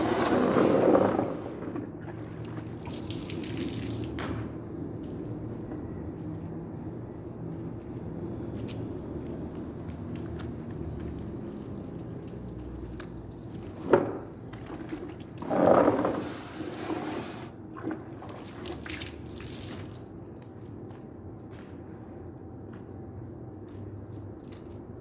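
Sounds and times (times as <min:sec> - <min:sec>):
low steady hum: 0:01.6 - 0:15.5
water splashing and dripping: 0:02.2 - 0:04.4, 0:09.6 - 0:15.4, 0:17.7 - 0:25.0.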